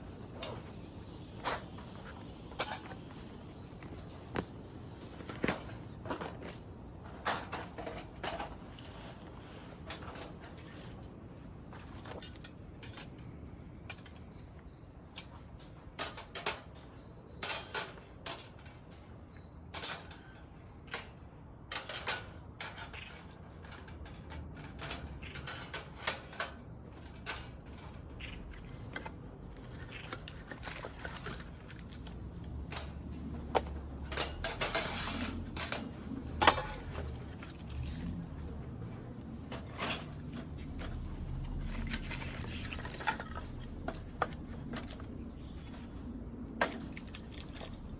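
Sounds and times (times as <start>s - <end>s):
metal clinks and clanks: 2.5s - 3.1s, 13.9s - 14.4s, 35.6s - 37.3s.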